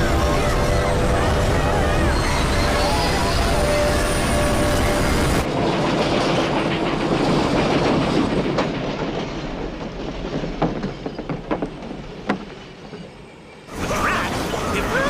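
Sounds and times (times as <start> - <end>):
train rumble: 0.0 - 15.0
wheels clacking over rail joints: 3.5 - 15.0.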